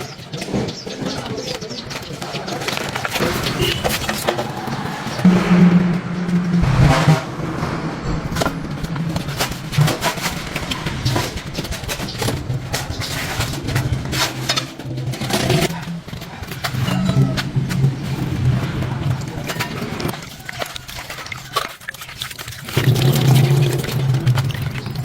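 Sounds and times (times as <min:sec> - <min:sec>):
engine running: 0:03.1 - 0:15.8.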